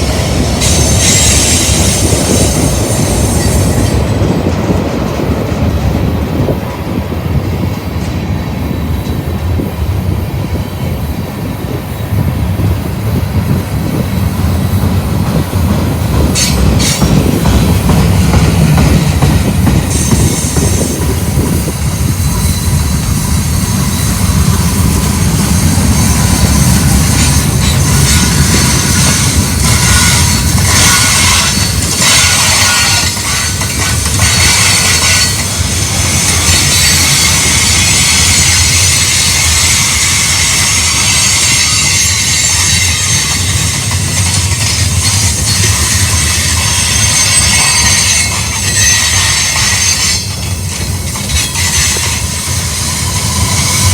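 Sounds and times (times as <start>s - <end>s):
freight train rumble: 0.0s - 53.9s
wheels clacking over rails: 12.6s - 53.9s
high-pitched flange squeal: 21.8s - 50.5s, 51.4s - 53.9s.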